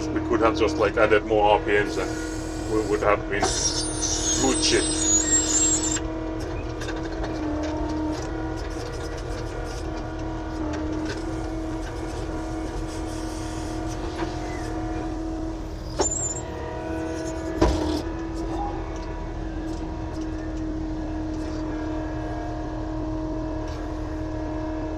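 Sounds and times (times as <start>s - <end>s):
earthmoving machine engine running: 0.0s - 24.9s
high squeak: 2.1s - 6.0s, 15.8s - 17.5s.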